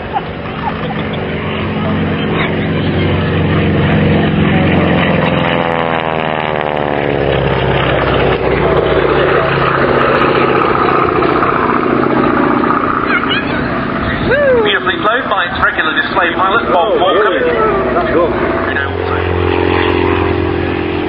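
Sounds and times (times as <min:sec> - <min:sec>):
radial aircraft engine passing: 0:00.0 - 0:21.0.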